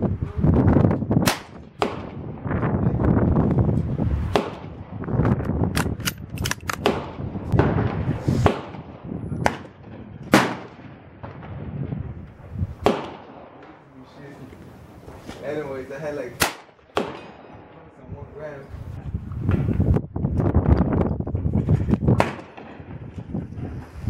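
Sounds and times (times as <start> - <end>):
wind rumble on microphone: 0.0 - 13.6, 17.2 - 24.0
gunshots: 1.2 - 2.3, 4.3 - 4.8, 5.7 - 11.8, 12.8 - 13.8, 16.4 - 17.8, 22.2 - 23.0.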